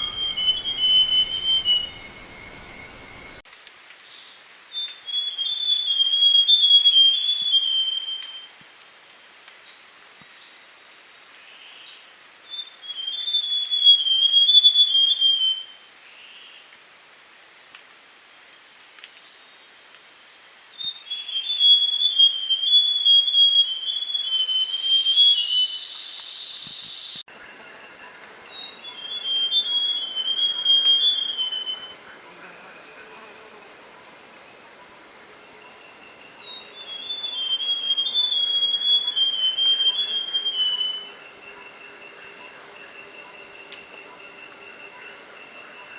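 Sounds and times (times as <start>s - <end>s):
bird singing whistled phrases: 0.0s - 3.4s, 28.5s - 32.0s, 36.4s - 41.2s
high insect trill: 0.0s - 3.4s, 27.3s - 45.9s.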